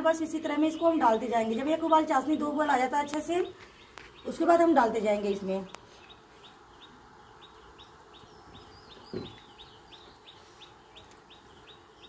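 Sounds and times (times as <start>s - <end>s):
bird chirping: 0.0s - 12.0s
dull thump: 9.1s - 9.4s.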